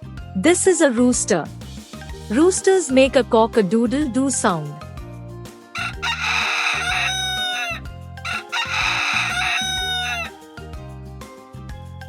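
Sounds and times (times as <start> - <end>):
light background music: 0.0 - 12.0
rooster crowing: 5.8 - 10.3.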